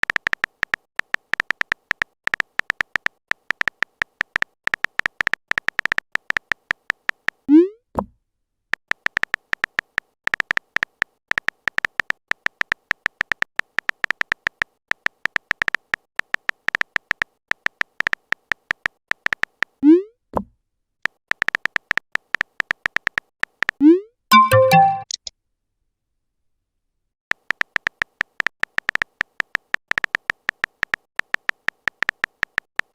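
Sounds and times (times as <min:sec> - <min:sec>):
synthetic keyboard typing clicks: 0:00.0 - 0:07.6, 0:08.7 - 0:19.9, 0:21.0 - 0:25.3, 0:27.3 - 0:32.9
short chime: 0:24.3 - 0:25.1.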